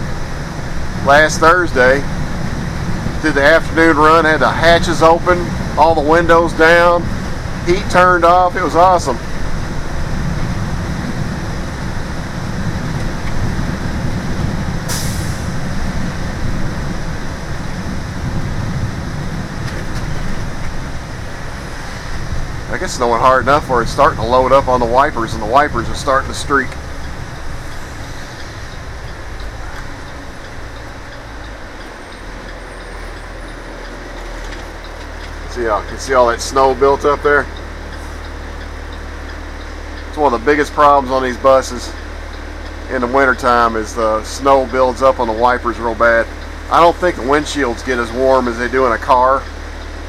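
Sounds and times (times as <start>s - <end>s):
bus engine and road noise: 0.0s - 50.0s
short hiss: 14.9s - 15.6s.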